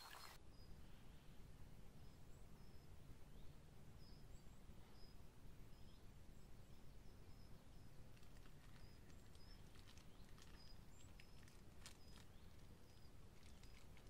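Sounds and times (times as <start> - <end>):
thin high bird chirps: 0.0 - 0.7, 7.1 - 14.0
faint clicks: 8.1 - 14.0.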